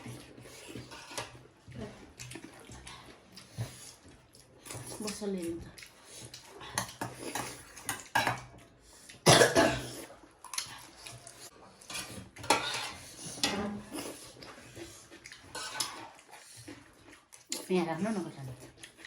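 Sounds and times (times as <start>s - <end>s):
spoon scraping a plate: 11.9s - 14.8s.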